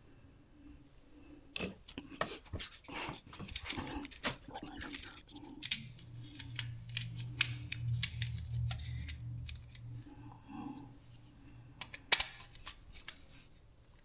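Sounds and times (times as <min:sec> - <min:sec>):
low hum: 0:04.6 - 0:13.3.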